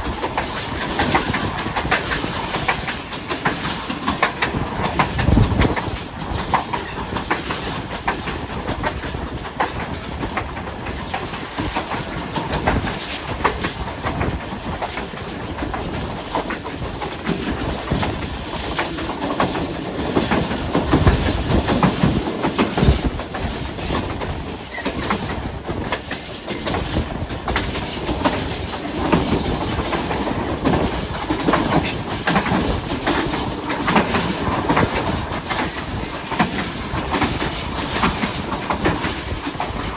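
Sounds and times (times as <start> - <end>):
train rumble: 0.0 - 39.9
train wheels clattering on rails: 0.0 - 39.9.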